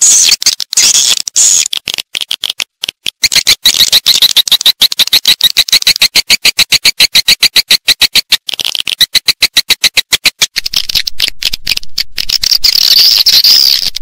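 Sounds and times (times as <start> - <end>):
swiftlet clicking chirps: 3.1 - 14.0.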